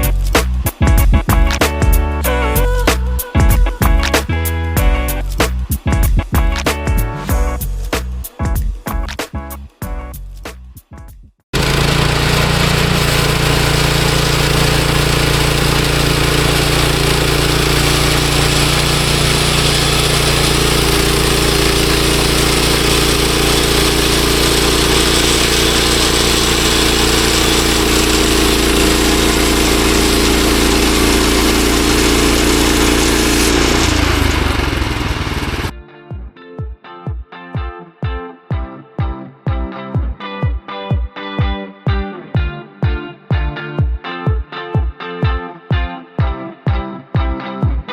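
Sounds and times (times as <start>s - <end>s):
band blade cutting log: 11.6s - 35.7s
gas engine running: 11.6s - 35.7s.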